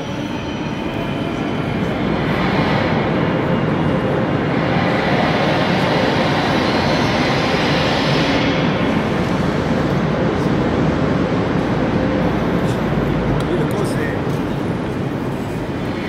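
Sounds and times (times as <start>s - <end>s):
electric train rumble: 0.0s - 16.0s.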